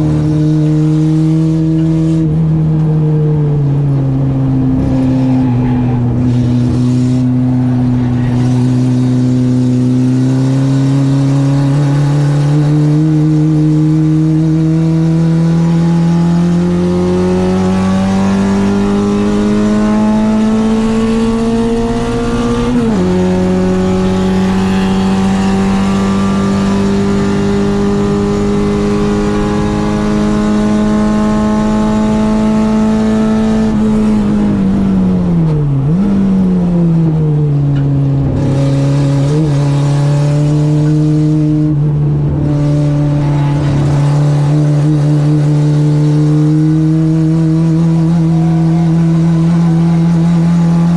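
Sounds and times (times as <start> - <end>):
car engine pulling under load: 15.7 - 48.2.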